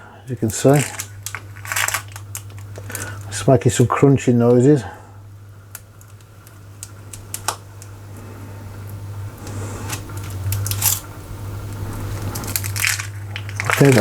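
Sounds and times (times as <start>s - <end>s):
laminator motor humming: 0.0s - 14.0s
clicks and crunching in rollers: 0.4s - 3.4s, 9.5s - 11.1s, 11.7s - 14.0s.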